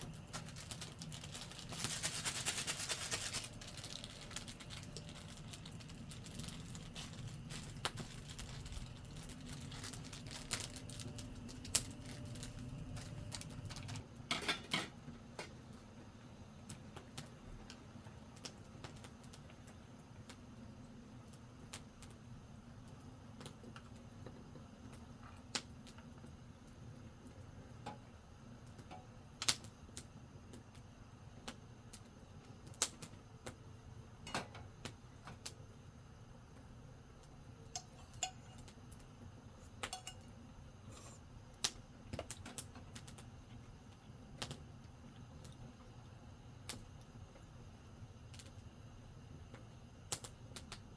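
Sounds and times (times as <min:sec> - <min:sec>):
campfire pops and snaps: 0:03.5 - 0:14.1, 0:25.0 - 0:26.0, 0:29.4 - 0:30.8, 0:31.4 - 0:33.6, 0:41.5 - 0:43.3, 0:44.4 - 0:44.6, 0:49.5 - 0:50.9.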